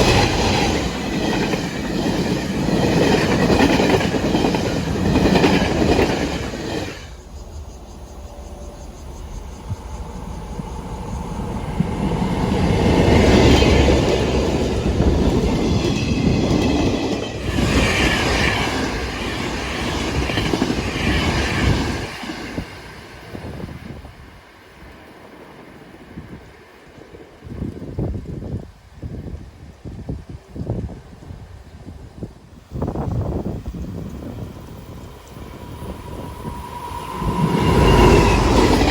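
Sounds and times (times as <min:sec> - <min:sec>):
train wheels clattering on track: 0:00.0 - 0:23.9, 0:32.9 - 0:38.9
high squeal of train: 0:00.0 - 0:38.9.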